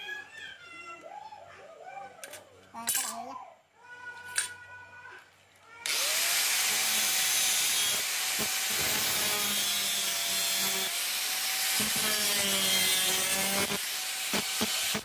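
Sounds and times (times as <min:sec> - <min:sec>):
power tool cutting steel: 0:05.9 - 0:15.0.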